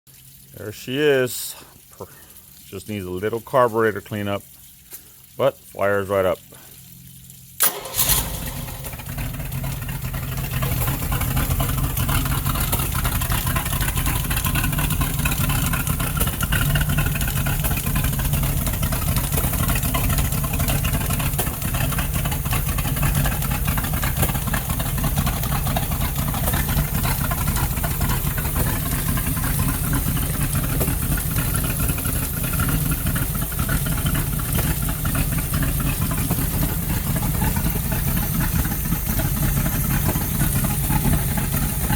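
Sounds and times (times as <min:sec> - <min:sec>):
boat engine running steadily: 0:06.4 - 0:41.9.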